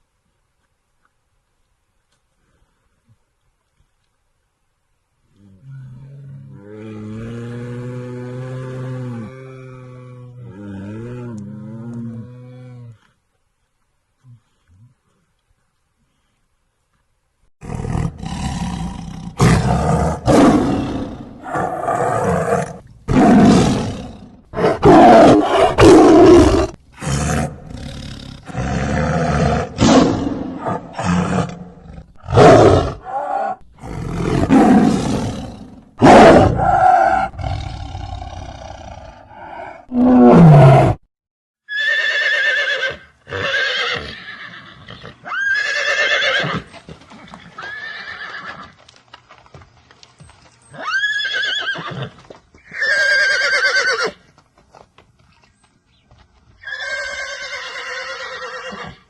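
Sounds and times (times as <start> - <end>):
animal roars: 5.4 - 13.1, 17.6 - 41.0.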